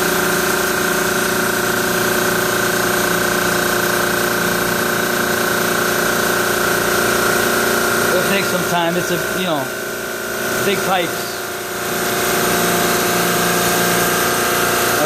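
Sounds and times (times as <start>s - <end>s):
refrigeration compressor running: 0.0s - 15.0s
constant whine: 4.6s - 15.0s.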